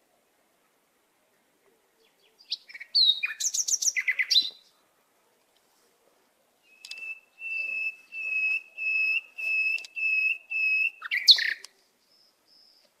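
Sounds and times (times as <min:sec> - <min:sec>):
rough bird call with click: 0:02.1 - 0:04.7, 0:06.7 - 0:08.6, 0:09.4 - 0:11.8, 0:12.6 - 0:13.0.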